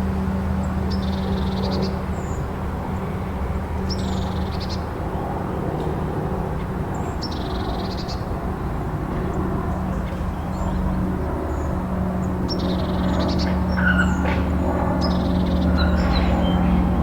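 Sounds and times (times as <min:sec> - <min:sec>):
birds giving harsh calls: 0:12.8 - 0:17.0.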